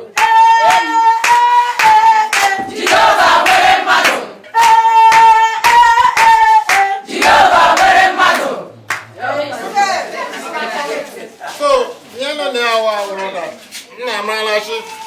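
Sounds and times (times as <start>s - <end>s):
group chanting in response: 0.0s - 11.4s
clapping: 0.1s - 9.1s.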